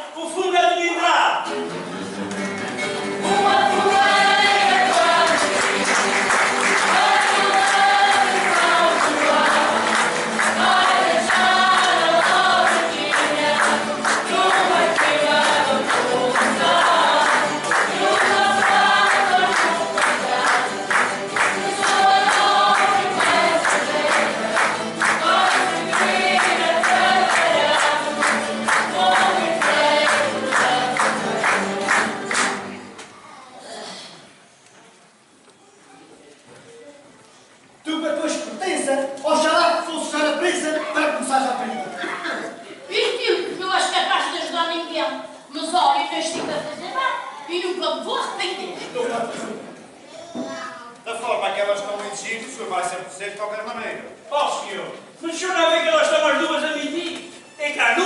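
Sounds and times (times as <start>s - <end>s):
group of voices singing: 3.0s - 32.7s.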